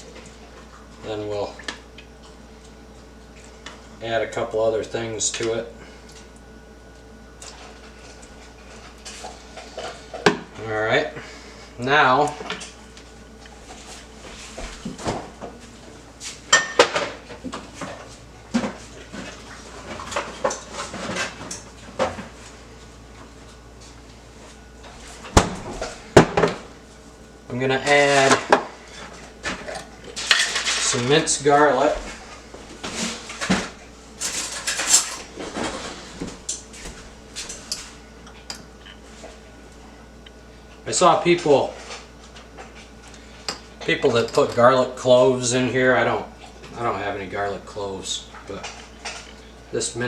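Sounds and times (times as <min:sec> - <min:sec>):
kitchen utensils clinking: 0:34.2 - 0:35.8.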